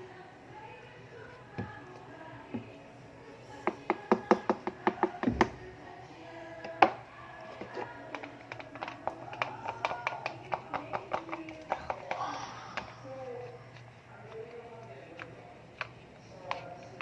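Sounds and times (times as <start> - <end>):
sharp taps mixing slime: 1.5 - 2.8, 3.6 - 5.7, 7.6 - 17.0.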